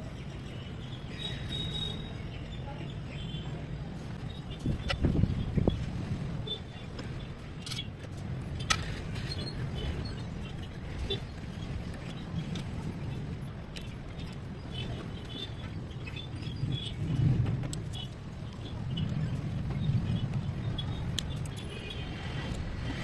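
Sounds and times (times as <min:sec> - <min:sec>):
faint bird chirps: 0:00.8 - 0:02.9
engine rumbling: 0:03.5 - 0:23.0.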